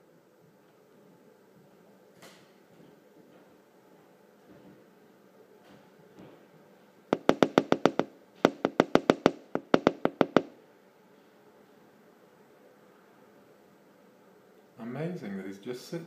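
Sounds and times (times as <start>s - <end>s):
bird pecking at window glass: 7.2s - 10.5s.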